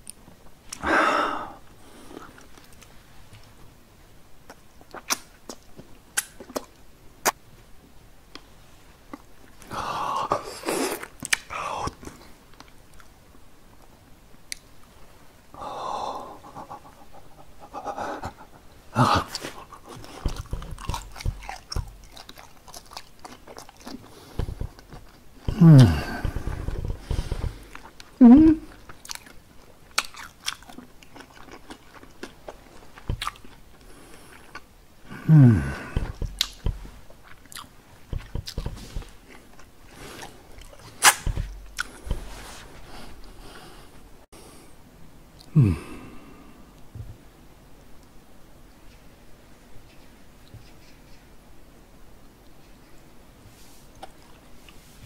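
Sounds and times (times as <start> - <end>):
man chewing with wet smacks: 4.4 - 7.5, 8.3 - 9.7, 10.3 - 15.0, 16.4 - 34.8, 35.5 - 42.5
sharp mouth smack: 41.0 - 41.4.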